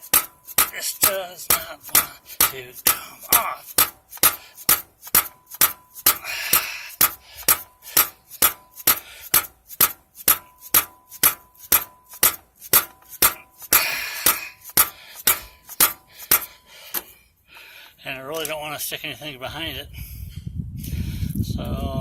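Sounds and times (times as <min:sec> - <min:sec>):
rubber mallet rapping on metal: 0:00.0 - 0:17.1
metal scraping: 0:00.0 - 0:17.4.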